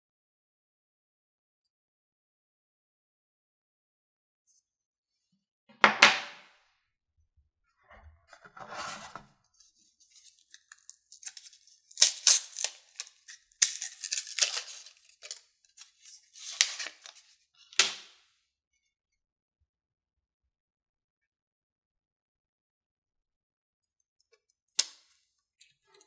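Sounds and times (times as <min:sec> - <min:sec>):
packaging crackling and tearing: 0:10.3 - 0:17.2
packaging clicking: 0:10.6 - 0:17.2.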